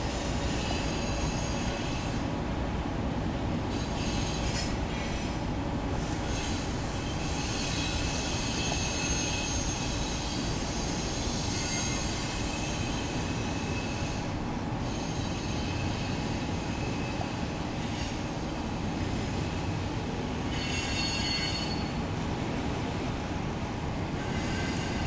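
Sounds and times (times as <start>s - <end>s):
wheels rumbling on rail: 0.0s - 25.0s
high-pitched wheel squeal: 6.3s - 14.2s, 20.5s - 22.0s.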